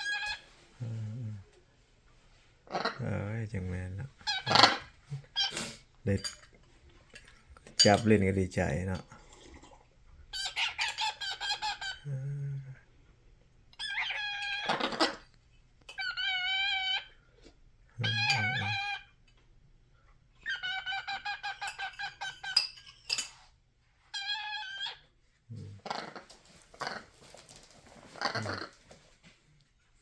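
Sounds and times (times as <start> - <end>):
pet bird calling: 0.0 - 0.4, 4.2 - 5.8, 13.8 - 15.2, 16.0 - 17.1, 18.0 - 19.0.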